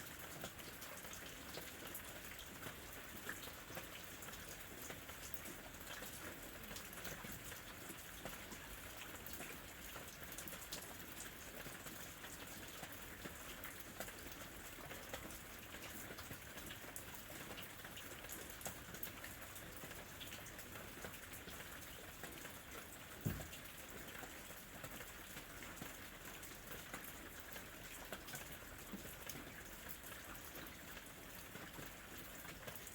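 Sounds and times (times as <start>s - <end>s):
steady rain falling: 0.0s - 32.9s
low thump: 23.2s - 23.7s.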